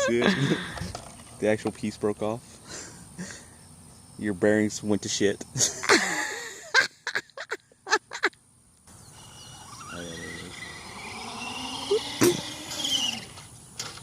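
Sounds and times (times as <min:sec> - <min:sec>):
electric motor whine: 0:09.0 - 0:14.0.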